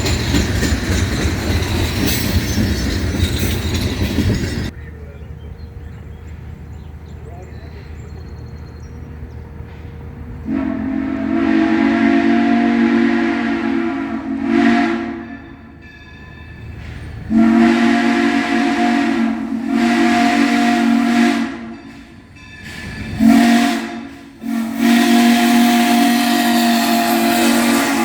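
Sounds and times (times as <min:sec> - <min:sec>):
steam locomotive chime whistle: 0:10.4 - 0:28.0
steam hiss: 0:21.9 - 0:28.0.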